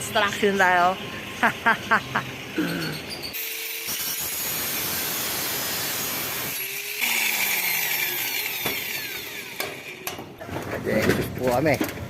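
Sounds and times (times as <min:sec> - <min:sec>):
power tool grinding: 0:02.2 - 0:10.4.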